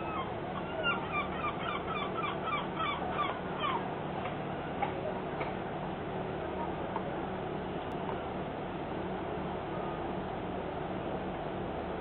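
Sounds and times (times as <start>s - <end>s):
gull calling: 0.0s - 3.9s
steady low hum: 0.0s - 12.0s.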